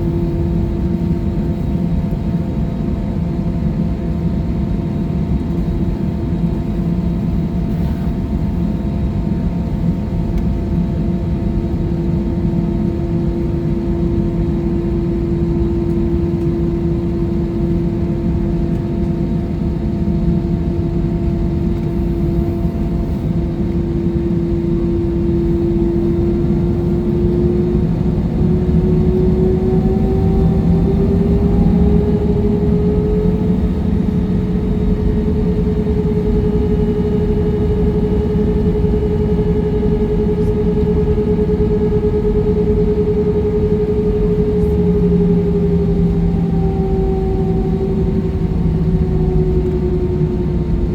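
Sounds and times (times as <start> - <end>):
jet engines heard from cabin: 0.0 - 50.9.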